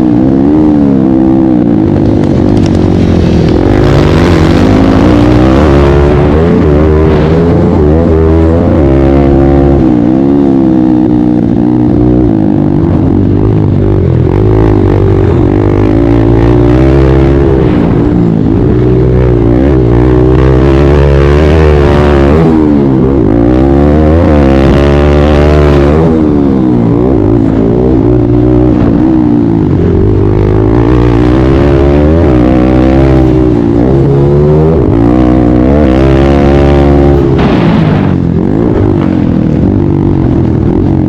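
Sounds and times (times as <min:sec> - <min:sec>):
pit bike engine revving: 0:00.0 - 0:41.0.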